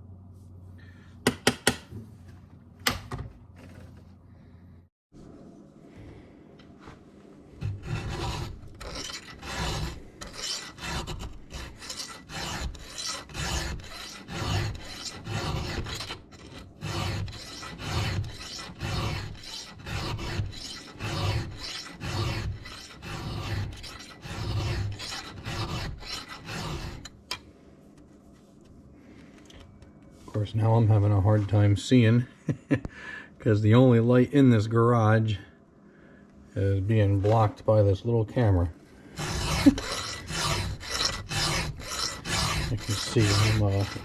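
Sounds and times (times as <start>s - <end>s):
file rasping on chainsaw chain: 7.7s - 27.1s, 39.2s - 44.0s.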